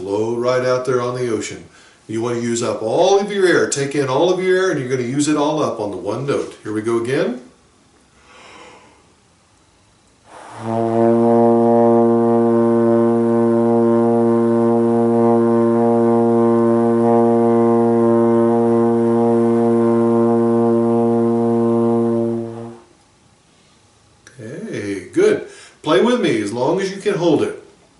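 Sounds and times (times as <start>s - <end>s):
breath: 1.7s - 2.1s, 8.2s - 9.2s, 10.3s - 10.7s, 25.5s - 25.8s
trombone holding low note: 10.3s - 22.9s.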